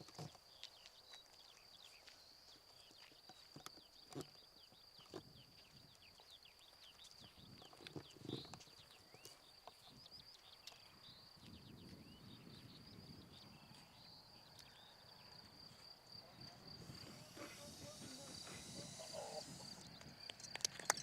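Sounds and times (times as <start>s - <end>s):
birds chirping: 0.0s - 21.0s
thin high tone: 16.8s - 19.9s.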